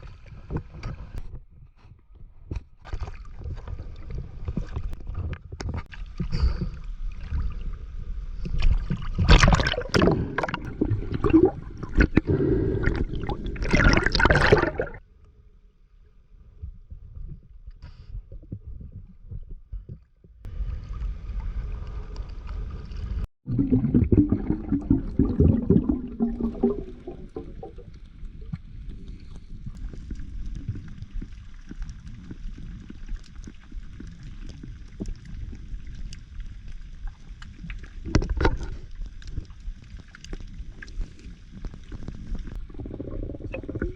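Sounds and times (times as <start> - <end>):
sea water splashing: 5.8 - 15.0, 20.5 - 43.9.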